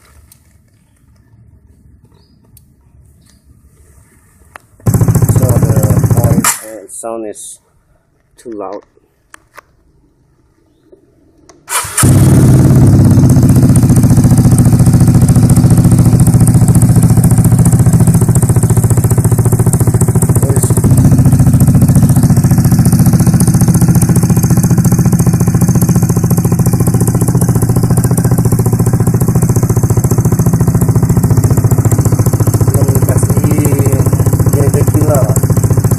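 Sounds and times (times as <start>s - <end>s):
scooter engine running loud: 4.8s - 6.4s, 11.9s - 35.9s.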